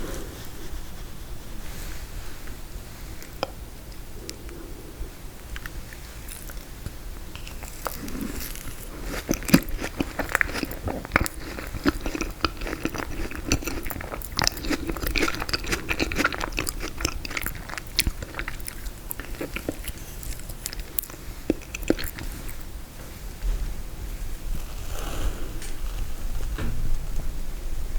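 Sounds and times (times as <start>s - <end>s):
crunchy chewing: 3.1s - 22.8s.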